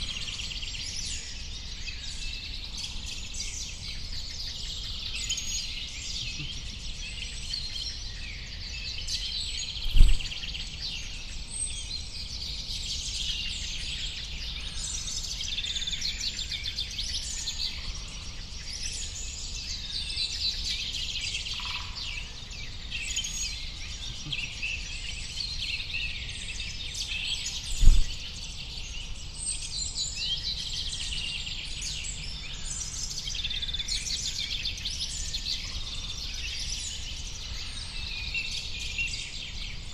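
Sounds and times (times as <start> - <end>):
small birds chirping and trilling: 0.0 - 39.9
dull low thumps: 9.9 - 10.4, 27.8 - 28.2.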